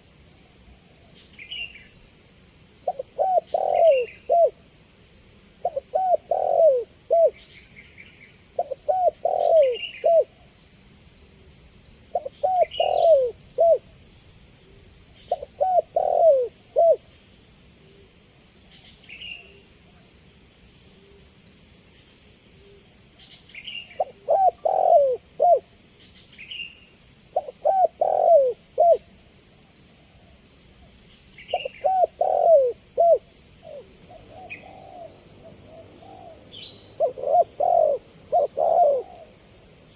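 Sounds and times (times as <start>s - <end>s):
dove cooing: 2.8s - 4.6s, 5.6s - 7.4s, 8.6s - 10.4s, 12.1s - 13.8s, 15.3s - 17.1s, 24.0s - 25.7s, 27.4s - 29.0s, 31.5s - 39.4s.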